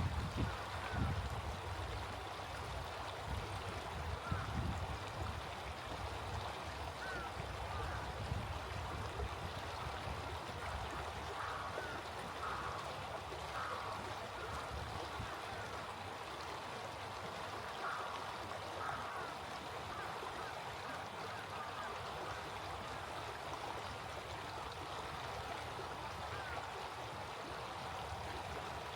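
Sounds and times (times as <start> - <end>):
stream flowing: 0.0 - 28.9.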